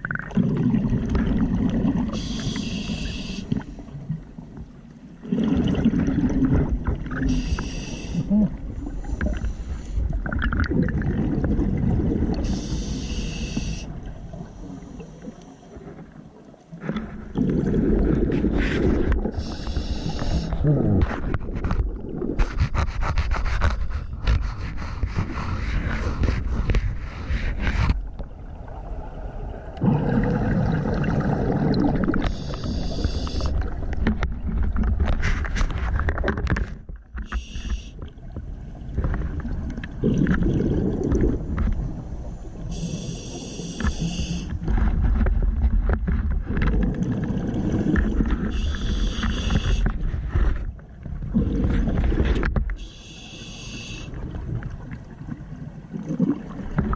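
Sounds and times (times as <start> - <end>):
bubbling exhalations: 0.0 - 3.6, 5.2 - 9.4, 10.1 - 12.8, 17.3 - 23.3, 29.8 - 33.8, 39.9 - 41.6
hissing regulator inhalations: 2.2 - 3.7, 7.3 - 8.3, 12.4 - 15.8, 19.4 - 20.6, 32.2 - 33.6, 37.2 - 38.0, 42.7 - 44.6, 47.8 - 49.9, 52.8 - 54.2.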